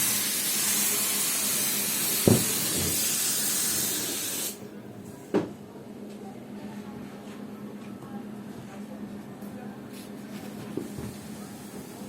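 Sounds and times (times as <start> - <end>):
rushing air hiss: 0.0 - 4.6.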